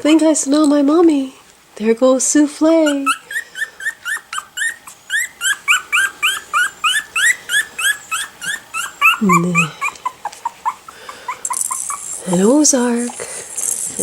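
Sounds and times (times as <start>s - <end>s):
puppy squeaking: 2.8s - 14.0s.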